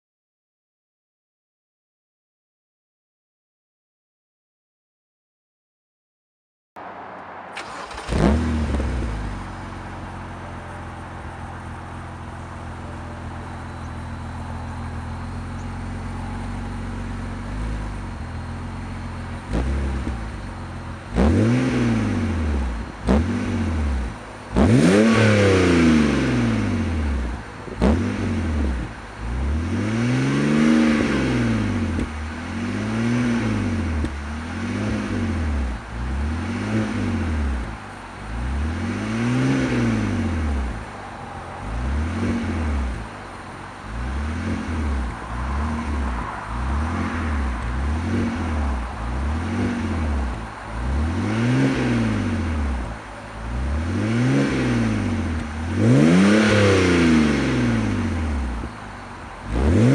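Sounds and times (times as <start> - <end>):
car engine revving: 6.8 - 59.9
exhaust crack: 6.8 - 59.9.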